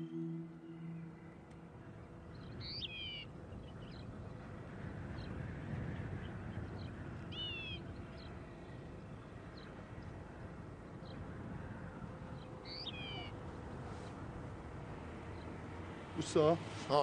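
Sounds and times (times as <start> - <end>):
bird wavering calls: 0.0 - 3.9, 12.7 - 13.4
faint bird chirps: 0.0 - 4.1, 12.6 - 13.4.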